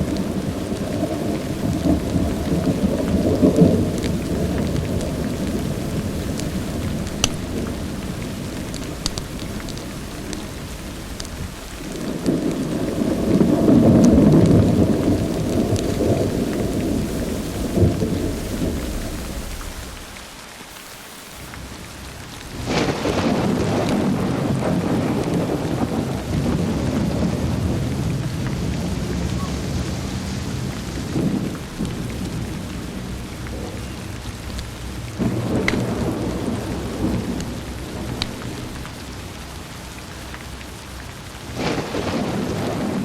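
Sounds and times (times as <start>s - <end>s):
thunder rolling: 0.0s - 20.2s, 20.8s - 43.0s
steady rain: 0.0s - 43.0s
sharp little ticks: 6.3s - 7.7s.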